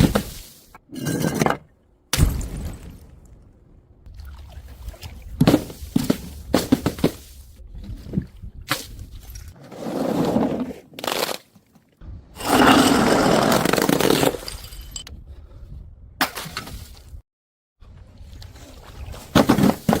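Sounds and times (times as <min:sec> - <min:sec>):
things being crushed: 0:12.5 - 0:15.0, 0:19.3 - 0:20.0.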